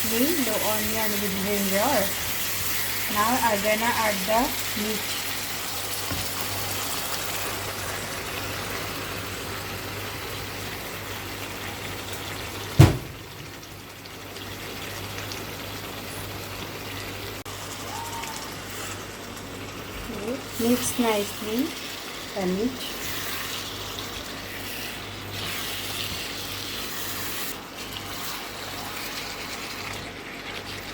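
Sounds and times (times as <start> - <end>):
spices frying and sizzling: 0.0 - 30.9
sharp knock: 12.8 - 13.3.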